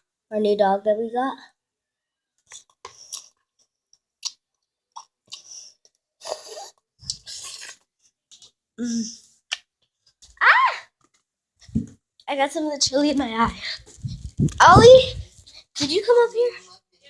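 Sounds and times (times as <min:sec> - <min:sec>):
person chewing: 0:02.5 - 0:08.6, 0:09.2 - 0:09.7
wet mouth noises: 0:02.5 - 0:09.7, 0:13.6 - 0:15.4.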